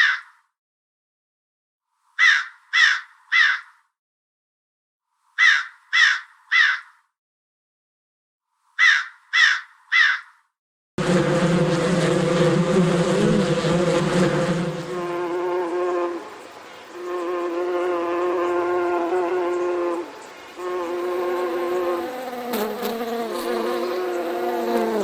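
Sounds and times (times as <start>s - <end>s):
raven cawing: 2.2s - 3.8s, 5.4s - 7.0s, 8.8s - 10.4s
bees buzzing: 11.0s - 25.0s.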